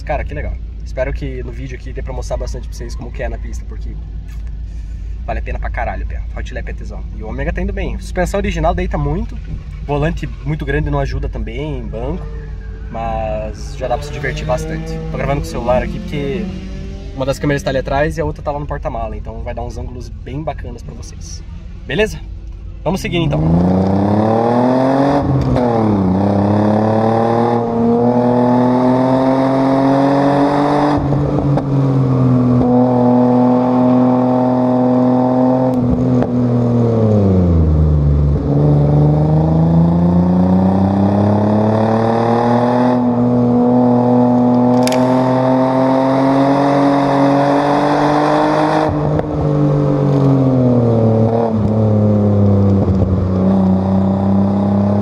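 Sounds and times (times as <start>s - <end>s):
car engine revving hard: 13.7s - 17.4s, 23.3s - 55.0s.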